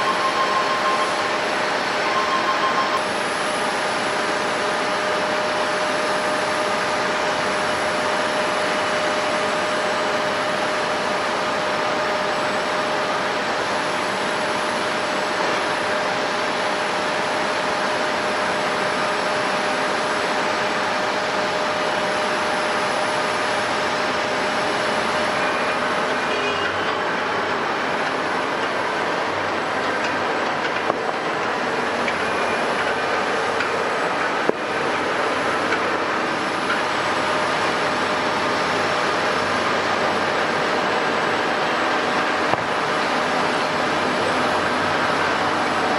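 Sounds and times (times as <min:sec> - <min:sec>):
jet engine roar: 0:00.0 - 0:26.6
jet engine whine: 0:00.0 - 0:45.9.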